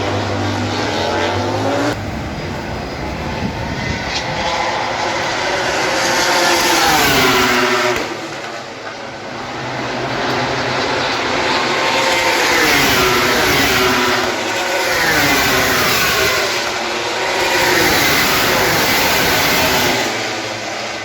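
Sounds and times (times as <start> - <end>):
racing motorcycles passing: 0.0 - 21.0.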